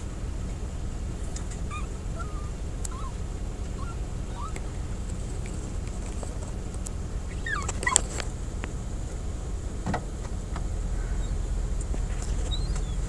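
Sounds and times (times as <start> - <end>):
steady low rumble: 0.0 - 13.0
seagulls calling: 1.4 - 5.1, 7.2 - 8.2, 12.2 - 13.0.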